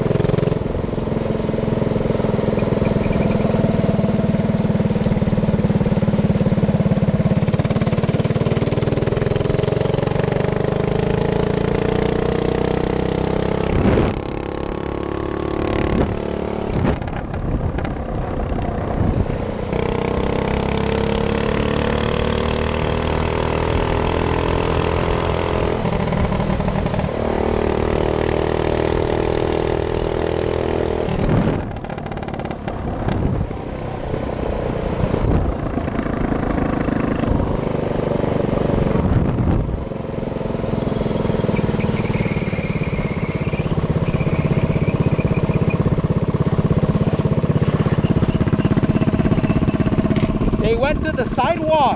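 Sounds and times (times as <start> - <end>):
small engine revving: 19.6 - 51.8.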